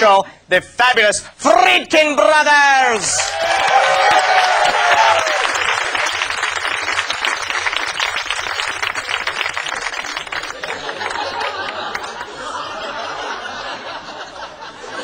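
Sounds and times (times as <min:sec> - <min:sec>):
audience applauding: 0:03.1 - 0:12.5
audience laughter: 0:10.4 - 0:15.0.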